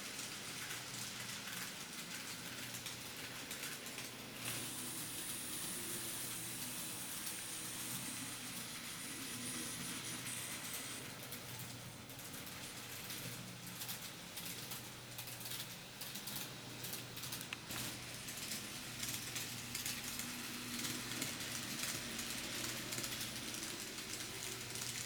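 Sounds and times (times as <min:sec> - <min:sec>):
model train wheels clicking on rails: 0:00.0 - 0:25.0
thin high-pitched steady whine: 0:03.9 - 0:11.4.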